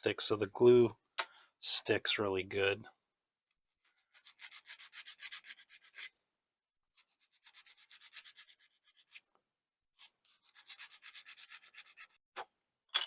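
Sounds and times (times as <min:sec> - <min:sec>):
sanding stick rubbing plastic: 0:07.0 - 0:09.2, 0:10.0 - 0:12.2.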